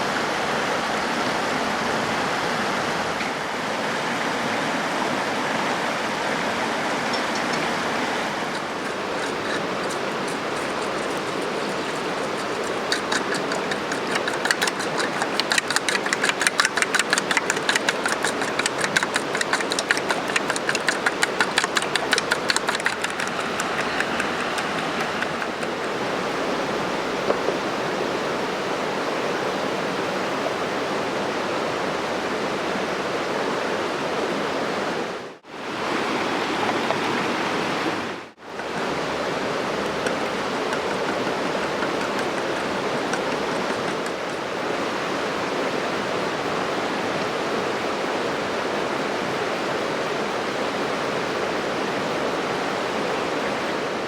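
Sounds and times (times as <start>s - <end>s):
fast even clicking: 7.5s - 26.4s, 38.5s - 45.3s.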